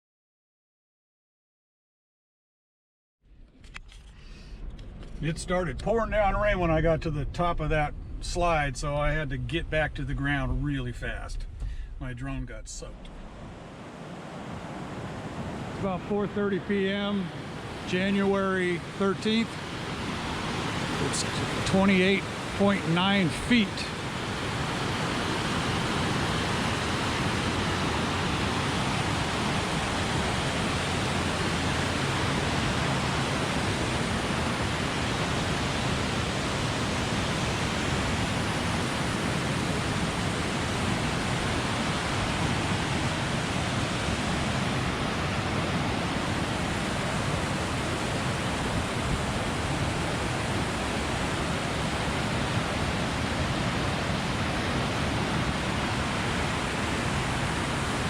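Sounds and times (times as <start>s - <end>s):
river rushing: 12.9s - 58.0s.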